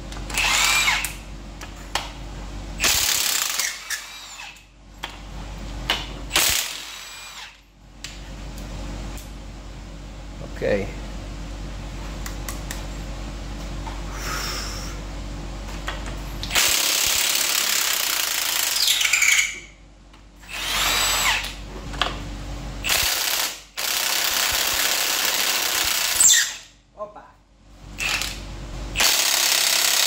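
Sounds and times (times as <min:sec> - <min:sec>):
steady low hum: 0:00.0 - 0:18.8, 0:26.6 - 0:29.0
power tool running: 0:00.3 - 0:01.1, 0:06.3 - 0:07.6, 0:16.5 - 0:19.3, 0:20.5 - 0:21.5, 0:29.0 - 0:30.0.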